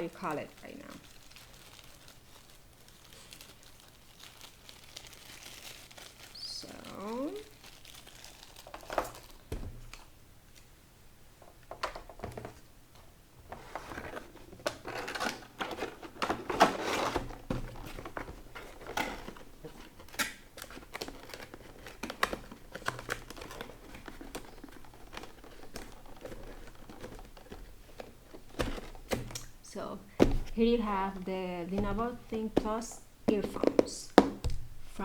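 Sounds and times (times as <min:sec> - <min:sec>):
plastic packaging crinkling: 0:00.0 - 0:10.2, 0:13.5 - 0:35.0.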